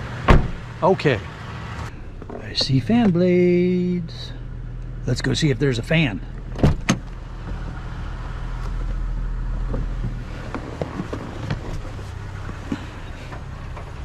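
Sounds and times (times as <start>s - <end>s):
vehicle engine idling: 0.0s - 14.0s
light knocks and rustles: 9.6s - 14.0s.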